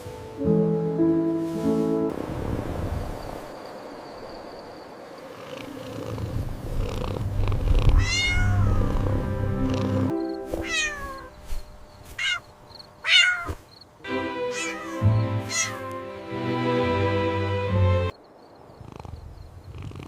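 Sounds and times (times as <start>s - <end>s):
soft background music: 0.0s - 2.2s, 8.4s - 12.0s, 14.0s - 18.2s
cat meowing: 7.9s - 9.1s, 10.5s - 11.4s, 12.1s - 12.4s, 13.0s - 13.6s, 14.5s - 15.8s.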